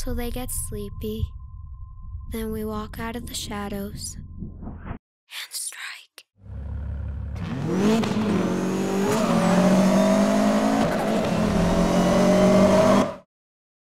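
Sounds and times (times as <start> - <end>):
car engine revving: 6.4 - 13.2.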